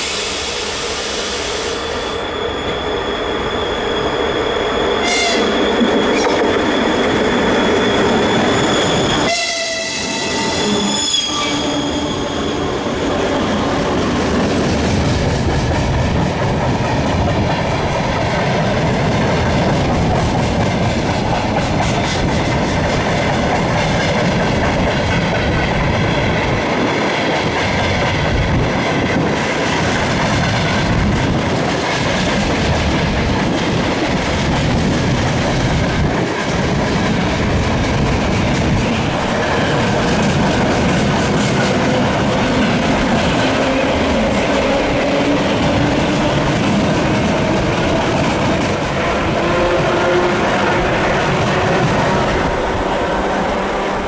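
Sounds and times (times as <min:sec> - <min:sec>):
train wagons rumbling and clattering: 0:01.9 - 0:54.0
train horn: 0:05.0 - 0:05.6, 0:09.2 - 0:12.4, 0:48.7 - 0:54.0.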